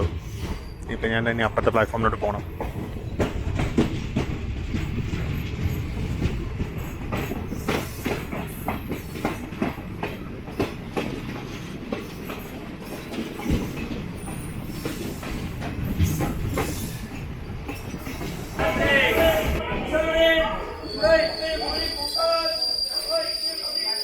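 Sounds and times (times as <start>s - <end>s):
train rumbling: 0.0s - 24.0s
wheels clicking over rail joints: 2.4s - 18.9s
high wheel squeal: 20.6s - 24.0s.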